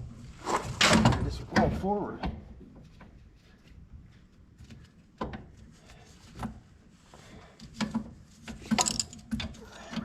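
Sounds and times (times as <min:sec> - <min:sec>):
knocks and clunks of parts: 0:00.7 - 0:03.1, 0:04.6 - 0:05.6, 0:07.6 - 0:10.0.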